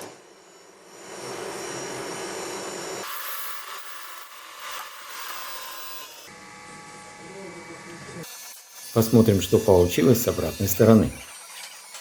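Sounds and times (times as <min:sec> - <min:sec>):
machine cutter scraping metal: 0:08.2 - 0:12.0.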